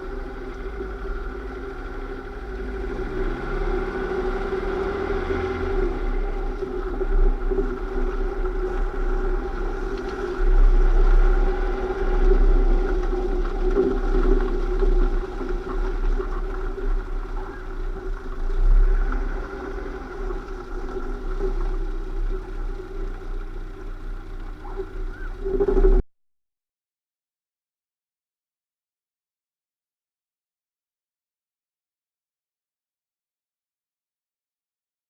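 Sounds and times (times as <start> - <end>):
deep vehicle rumble: 0.0 - 26.0
drivetrain whine: 0.0 - 26.0.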